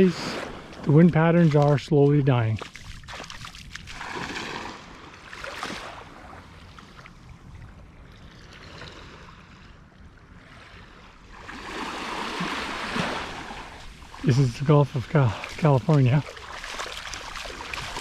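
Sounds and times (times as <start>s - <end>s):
surf washing on sandy beach: 11.4s - 18.0s.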